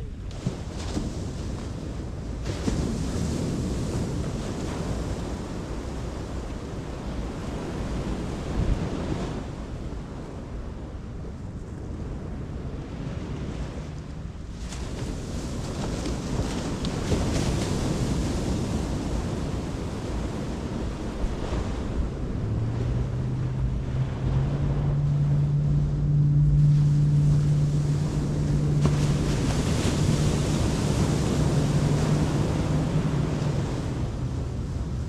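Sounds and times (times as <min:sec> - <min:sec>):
ocean surf: 0:00.0 - 0:35.0
wind buffeting microphone: 0:00.0 - 0:35.0
low hum rising in pitch: 0:21.1 - 0:35.0.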